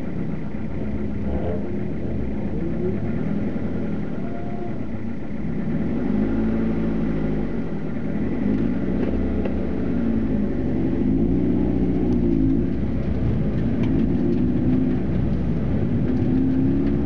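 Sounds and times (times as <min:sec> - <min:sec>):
car engine at low revs: 0:00.0 - 0:17.0.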